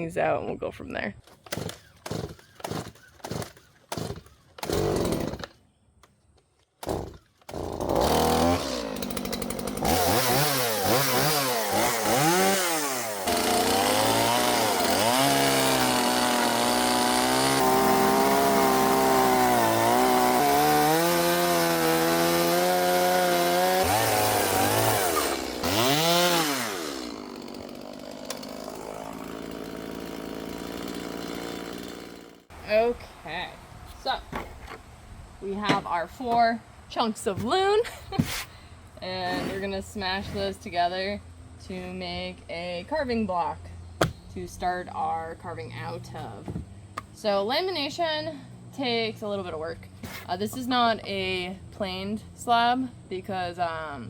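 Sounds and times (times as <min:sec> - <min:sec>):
chainsaw cutting wood: 0:01.3 - 0:05.6, 0:06.8 - 0:32.6.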